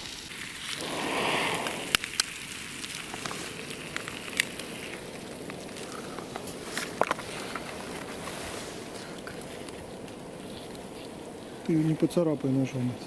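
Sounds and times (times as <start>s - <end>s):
food sizzling in a pan: 0.0s - 9.8s.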